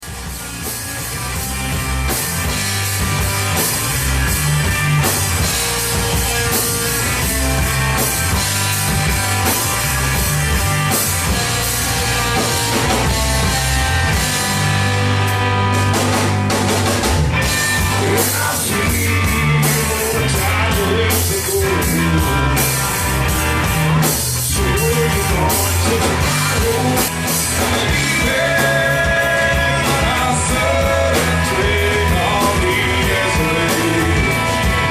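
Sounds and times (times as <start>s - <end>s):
rock band playing: 0.0s - 34.9s.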